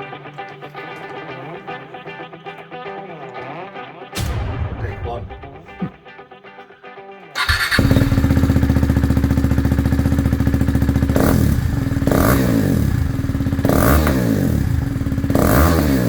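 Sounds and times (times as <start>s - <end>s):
engine throttle blips: 7.4s - 16.0s
motorcycle engine idling: 7.4s - 16.0s.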